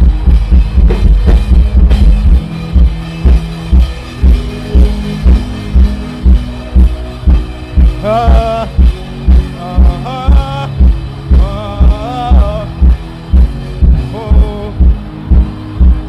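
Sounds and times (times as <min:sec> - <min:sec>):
worship music: 0:00.0 - 0:16.0
person singing: 0:04.3 - 0:05.9, 0:07.8 - 0:13.2, 0:13.8 - 0:15.2.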